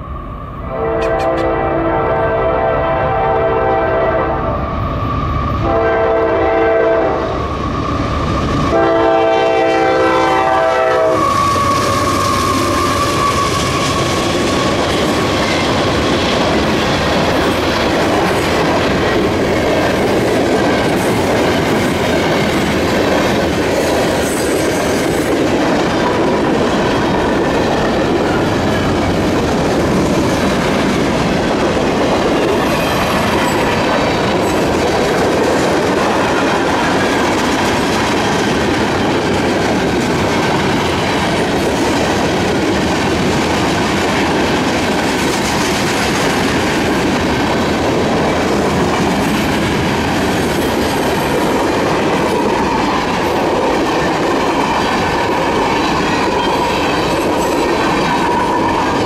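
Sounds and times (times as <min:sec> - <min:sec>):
locomotive air horn blasts: 0:00.6 - 0:04.7, 0:05.6 - 0:07.4, 0:08.7 - 0:11.8.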